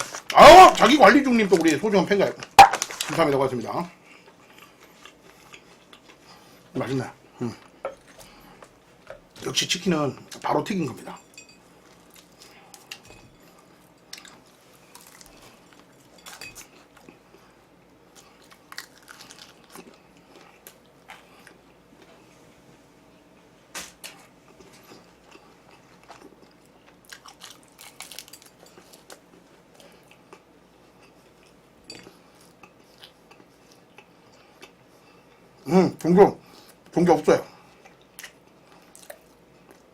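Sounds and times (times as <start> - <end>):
person chewing crispy food: 4.1 - 6.7, 11.8 - 22.1, 23.8 - 35.4, 37.7 - 39.9.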